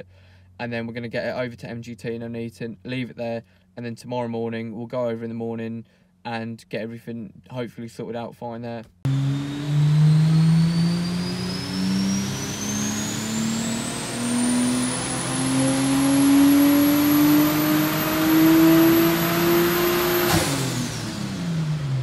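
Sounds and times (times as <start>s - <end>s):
car engine revving under load: 9.1s - 22.0s
turbo whine: 9.1s - 22.0s.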